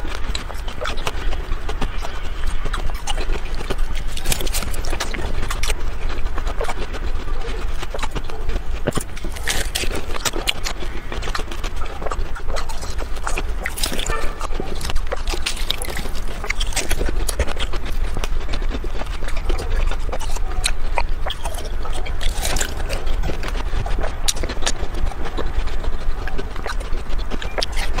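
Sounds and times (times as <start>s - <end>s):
person crunching ice: 2.0s - 5.8s, 6.7s - 25.4s.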